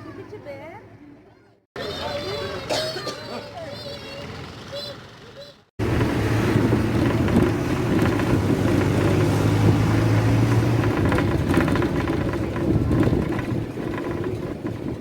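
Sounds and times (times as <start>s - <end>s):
van engine running: 4.2s - 15.0s.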